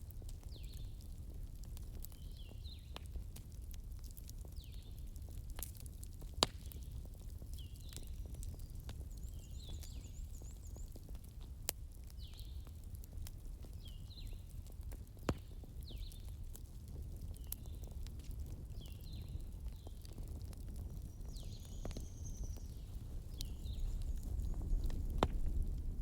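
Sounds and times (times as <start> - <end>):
burning logs popping: 0.0 - 26.0
campfire crackling: 0.0 - 26.0.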